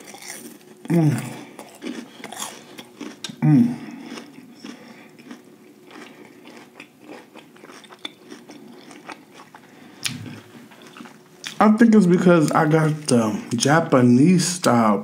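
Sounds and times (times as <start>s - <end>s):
chewing crispy food: 0.0s - 13.7s
person humming in enjoyment: 0.8s - 1.5s, 3.4s - 4.0s.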